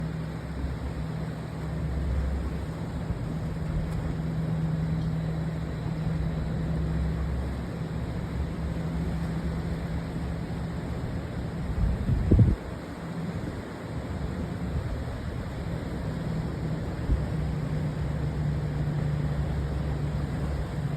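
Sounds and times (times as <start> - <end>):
ship engines droning: 0.0 - 20.9.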